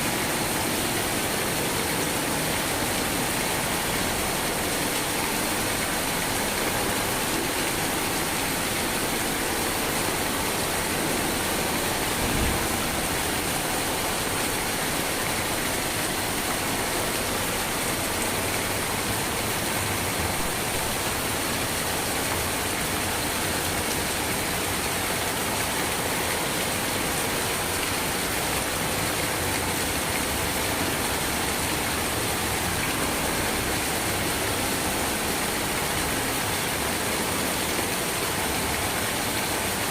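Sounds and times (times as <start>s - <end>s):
steady rainfall: 0.0s - 39.9s
brief low thump: 12.2s - 13.0s.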